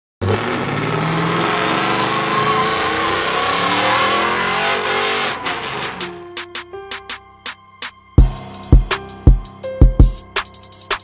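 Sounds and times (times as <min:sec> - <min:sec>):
truck engine revving high: 0:00.2 - 0:06.3
wavering high squeal: 0:01.0 - 0:06.2.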